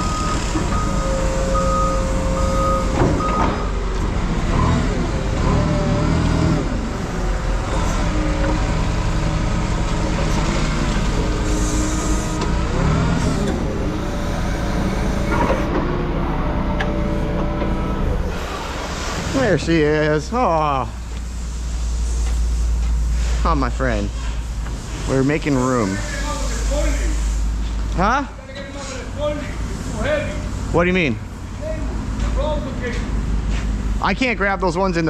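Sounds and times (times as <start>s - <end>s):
backup alarm beeping: 0.0s - 3.8s
heavy diesel machine running: 0.0s - 35.0s.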